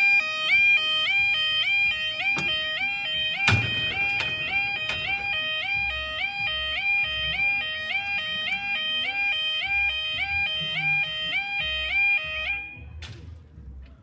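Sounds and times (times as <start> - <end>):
level crossing alarm warbling: 0.0 - 12.8.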